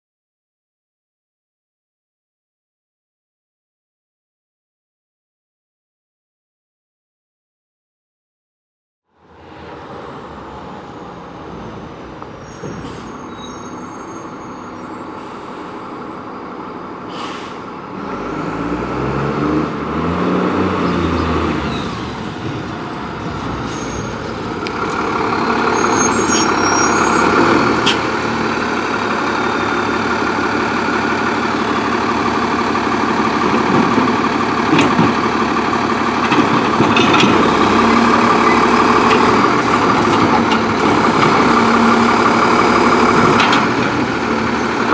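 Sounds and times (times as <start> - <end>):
garbage truck diesel engine: 9.2 - 44.9.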